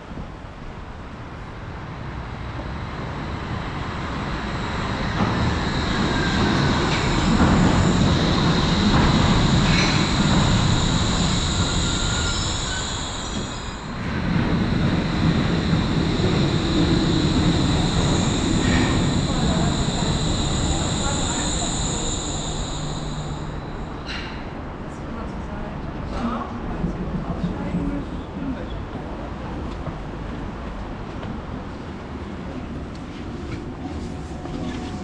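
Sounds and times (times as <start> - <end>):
monorail train rumble: 0.0 - 35.0
high wheel squeal: 4.2 - 24.4.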